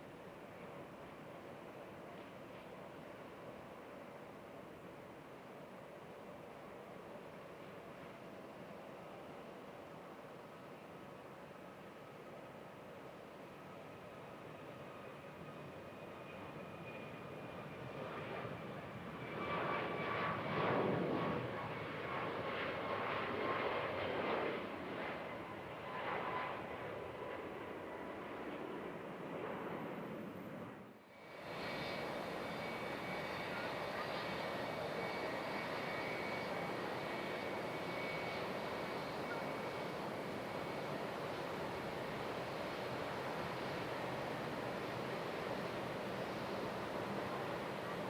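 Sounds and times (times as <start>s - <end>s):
faint high whine: 0.0s - 48.0s
jet airliner passing: 14.2s - 48.0s.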